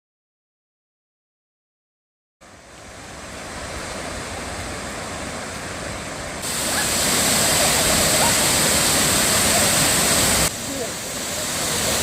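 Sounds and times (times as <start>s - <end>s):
waterfall rushing: 2.4s - 12.0s.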